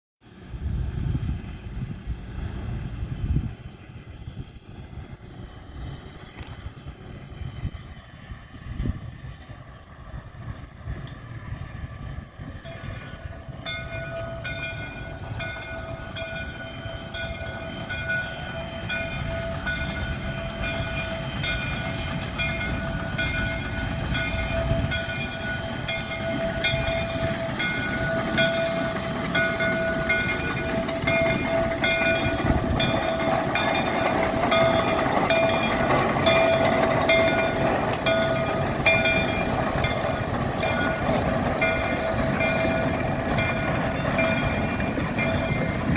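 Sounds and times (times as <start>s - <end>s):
steam locomotive rumbling: 0.2s - 45.9s
pulsing ringing tone: 11.6s - 45.9s.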